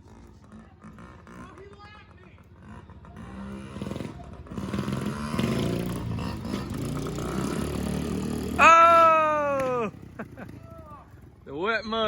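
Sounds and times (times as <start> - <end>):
mini dirt bike engine: 0.0 - 11.6
person shouting: 8.6 - 10.0.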